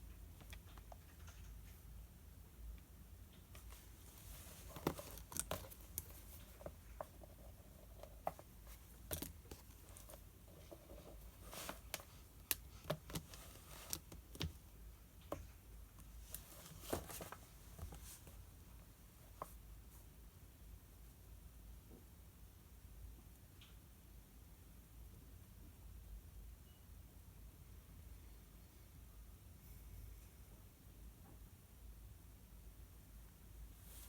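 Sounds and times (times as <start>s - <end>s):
light clicks and taps: 0.0s - 2.0s
paper rustling: 8.0s - 14.4s.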